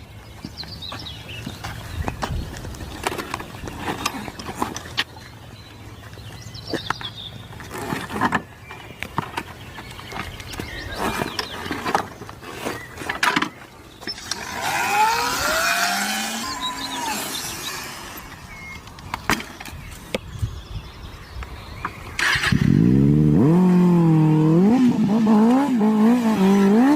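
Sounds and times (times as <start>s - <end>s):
motorcycle engine revving: 14.1s - 18.6s, 22.2s - 26.9s.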